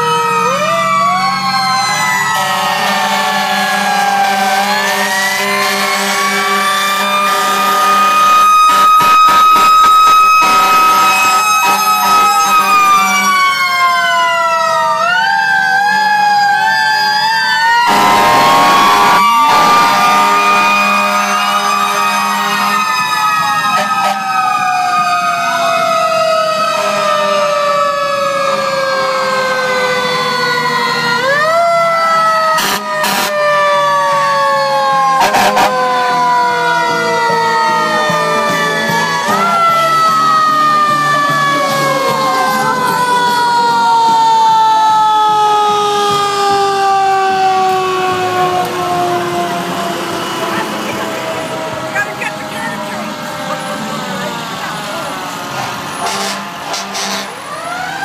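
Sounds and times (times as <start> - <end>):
fire truck sirens wailing: 0.0 - 58.0
loud horn blast: 2.3 - 13.4, 17.8 - 23.0, 23.7 - 24.3, 32.5 - 33.7, 35.2 - 36.4, 37.8 - 39.9, 55.6 - 57.5.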